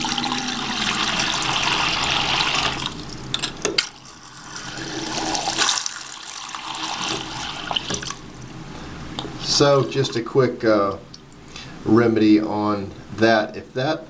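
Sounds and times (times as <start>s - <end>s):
faucet water rushing: 0.0s - 8.3s.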